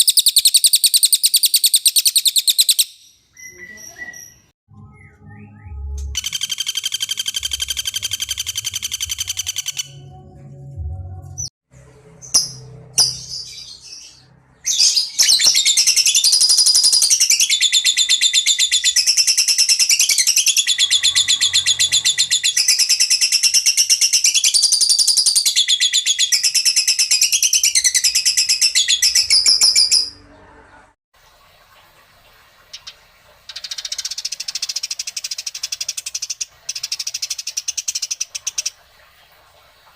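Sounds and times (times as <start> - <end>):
songbird chirping: 0.0 - 10.4.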